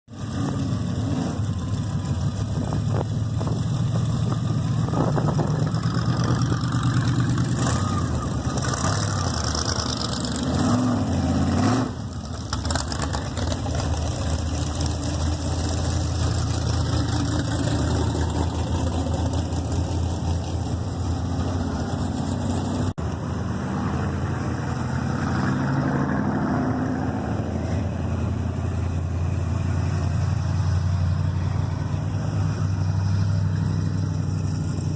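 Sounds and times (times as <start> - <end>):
car engine idling: 0.1 - 10.4, 12.0 - 23.3.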